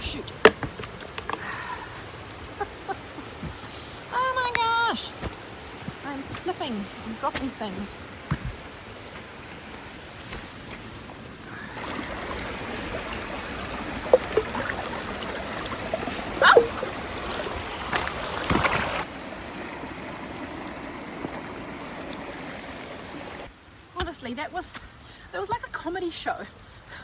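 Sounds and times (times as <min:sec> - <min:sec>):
water splashing: 0:00.0 - 0:24.5
mountain stream flowing: 0:00.0 - 0:27.0.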